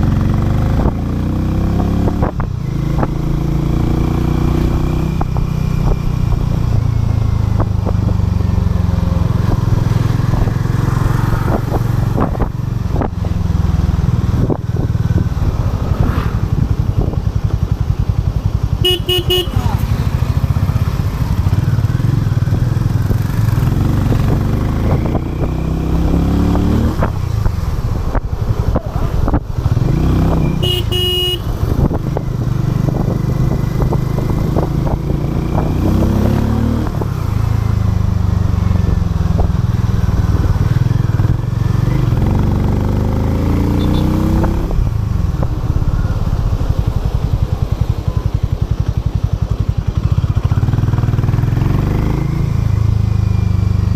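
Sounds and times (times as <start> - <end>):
motorcycle engine accelerating: 0.0 - 53.9
vehicle horn toot: 18.8 - 19.9, 30.4 - 31.6, 43.7 - 44.2.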